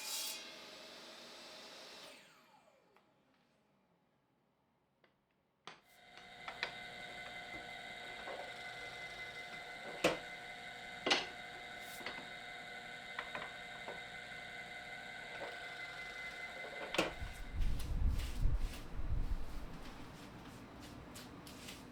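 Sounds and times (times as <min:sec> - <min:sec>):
power tool motor whine: 0:06.0 - 0:18.4.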